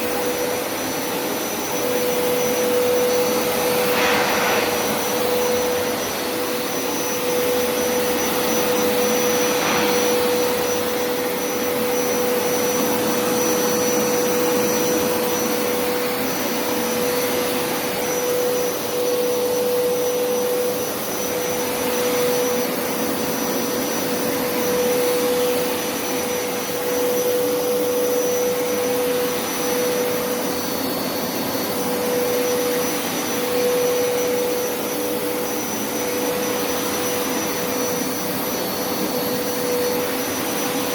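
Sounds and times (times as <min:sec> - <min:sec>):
carpet cleaner motor whine: 0:00.0 - 0:40.9
suction rushing: 0:03.4 - 0:06.5.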